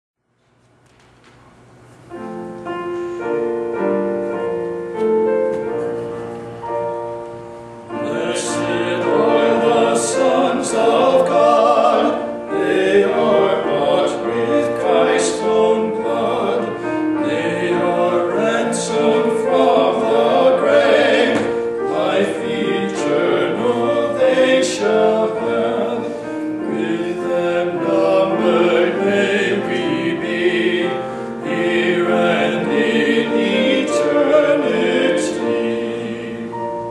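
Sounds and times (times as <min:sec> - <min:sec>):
keyboard accompaniment: 0:00.8 - 0:36.9
men singing a hymn: 0:08.0 - 0:36.9.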